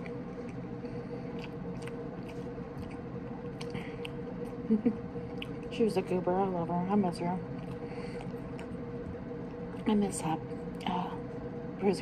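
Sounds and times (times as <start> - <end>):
person chewing: 0.0 - 5.7, 7.5 - 9.9
steady low hum: 0.0 - 12.0
mouth clicks and smacks: 5.3 - 5.7.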